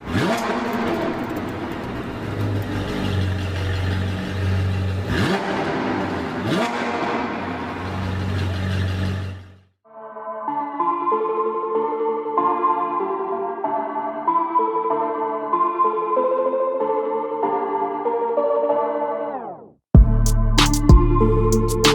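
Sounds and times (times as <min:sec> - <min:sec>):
car engine revving: 0:00.0 - 0:09.7.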